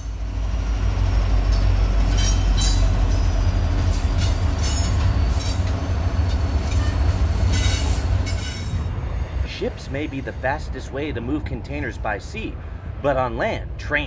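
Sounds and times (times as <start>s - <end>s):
wheel-on-rail noise: 0.0s - 11.8s
freight train rumbling past: 0.0s - 14.0s.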